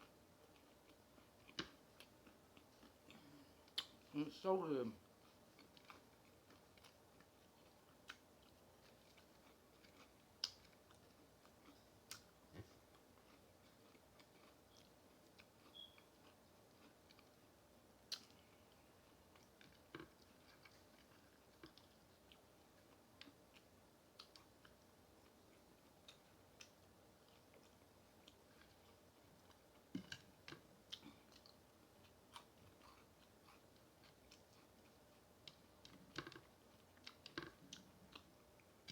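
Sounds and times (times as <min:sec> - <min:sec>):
mouth clicks and food crunches: 0:00.0 - 0:04.1, 0:05.0 - 0:38.9
chewing fried chicken: 0:00.0 - 0:38.9.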